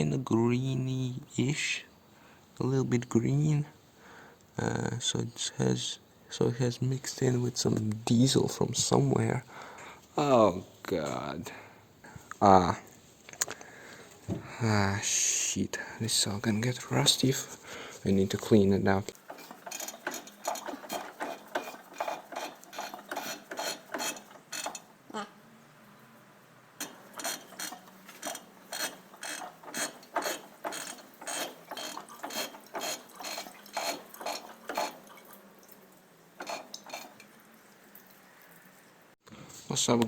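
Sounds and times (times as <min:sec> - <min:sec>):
hand tools clicking on metal: 0:19.1 - 0:24.9, 0:26.8 - 0:35.4, 0:36.4 - 0:37.3.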